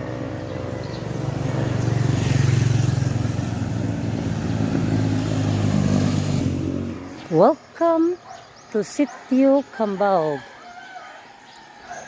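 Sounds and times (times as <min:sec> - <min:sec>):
vehicle engine running: 0:00.0 - 0:07.3.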